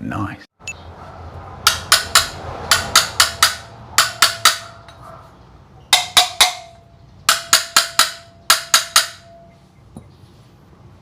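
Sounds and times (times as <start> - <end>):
sharp metallic taps: 1.6 - 5.1, 5.9 - 10.1.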